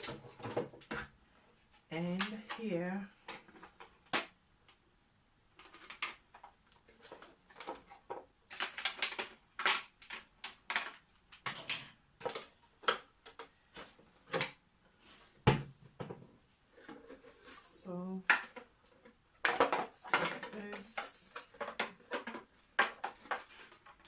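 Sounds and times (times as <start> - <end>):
plastic parts clicking and knocking: 0.0 - 1.2, 2.1 - 4.8, 5.6 - 14.6, 18.2 - 24.0.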